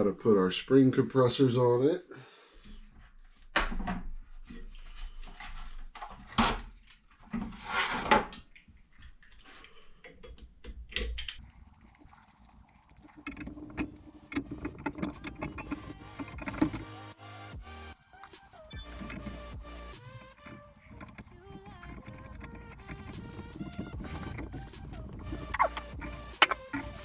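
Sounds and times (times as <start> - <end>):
metal parts clinking and clanking: 11.4 - 27.0.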